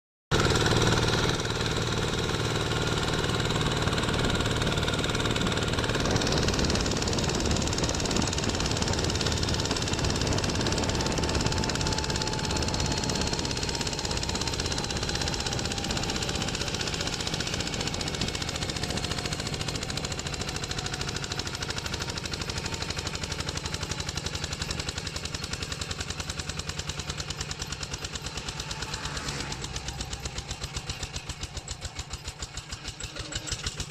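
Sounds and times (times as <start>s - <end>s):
diesel engine chugging: 0.3s - 33.9s.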